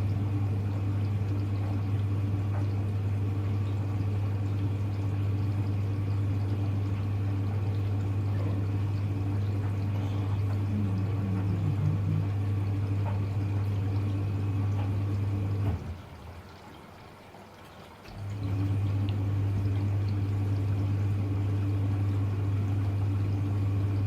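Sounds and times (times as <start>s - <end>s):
washing machine hum: 0.0s - 24.0s
water pouring into drum: 0.0s - 24.0s.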